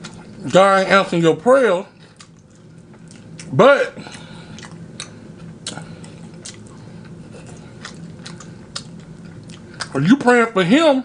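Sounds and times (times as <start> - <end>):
faint low hum: 0.0 - 11.0
wet chewing clicks and smacks: 2.1 - 10.0.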